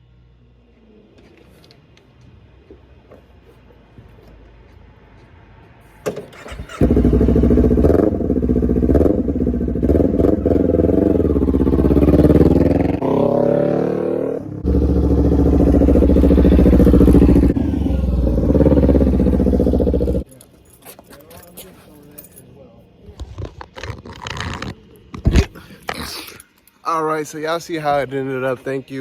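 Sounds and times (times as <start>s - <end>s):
motorcycle engine starting: 6.1s - 20.2s
motorcycle engine revving: 6.4s - 20.2s.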